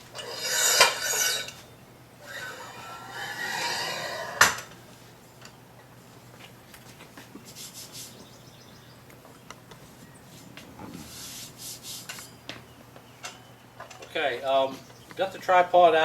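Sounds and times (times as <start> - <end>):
metal tripod scraping: 0.0 - 4.8.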